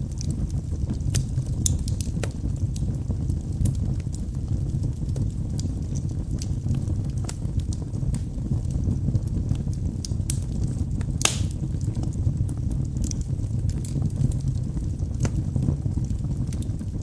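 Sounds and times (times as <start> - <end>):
fireplace flame rumble: 0.0 - 17.0
logs crackling: 0.1 - 16.9
loud fire pop: 11.2 - 11.7.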